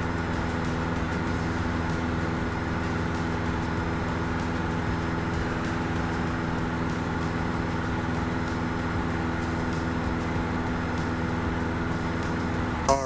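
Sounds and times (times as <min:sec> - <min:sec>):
airplane engine and propeller droning: 0:00.0 - 0:13.0.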